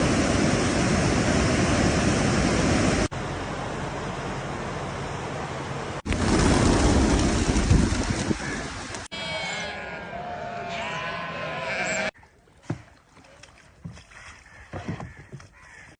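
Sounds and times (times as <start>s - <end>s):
outdoor rushing noise: 5.6s - 9.1s.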